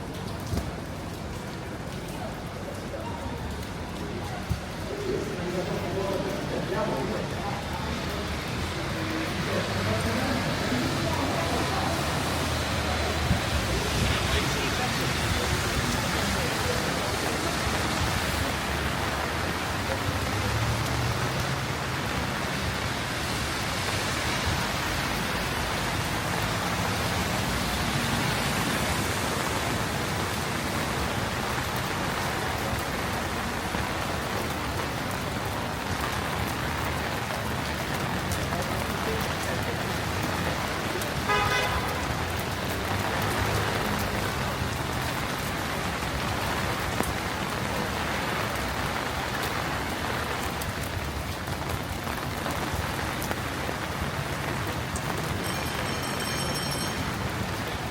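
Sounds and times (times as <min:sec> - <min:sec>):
cars passing on wet street: 0:00.0 - 0:57.9
heavy rain: 0:00.0 - 0:57.9
car horn toot: 0:41.3 - 0:42.1.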